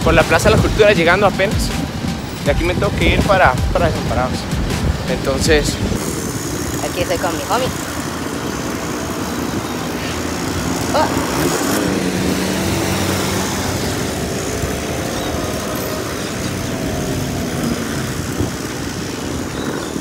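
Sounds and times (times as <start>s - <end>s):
passing cars motorcycles and buses: 0.0s - 20.0s
vehicle engine running close by: 5.8s - 20.0s.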